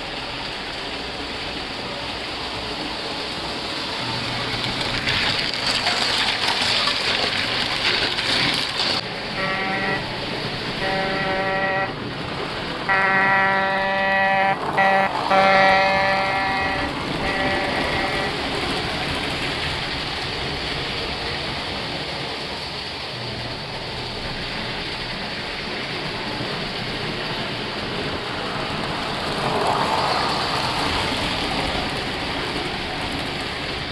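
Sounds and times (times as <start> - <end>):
train running rumble: 0.0 - 33.9
train horn blasts: 9.3 - 12.1, 12.9 - 18.6.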